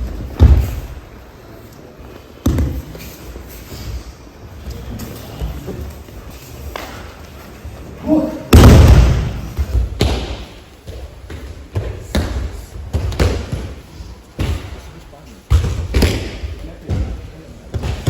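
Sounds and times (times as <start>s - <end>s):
bodies slamming onto mats: 0.3s - 1.0s, 8.5s - 10.5s.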